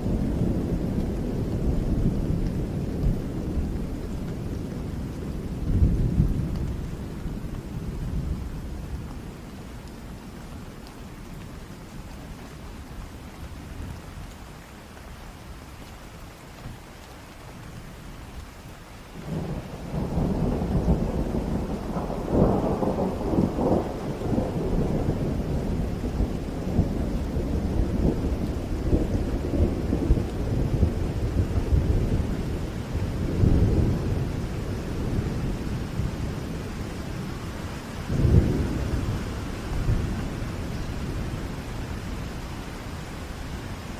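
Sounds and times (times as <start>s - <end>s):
thunder rumbling: 0.0s - 9.4s, 19.2s - 43.9s
steady rain: 0.0s - 43.9s
sharp thunderclap: 19.2s - 32.2s, 38.1s - 41.3s.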